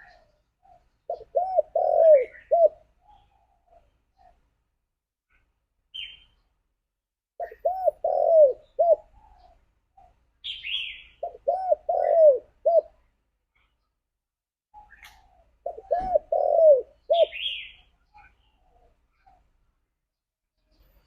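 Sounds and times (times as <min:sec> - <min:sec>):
dove cooing: 0:00.0 - 0:04.4, 0:07.4 - 0:13.0, 0:14.8 - 0:19.6.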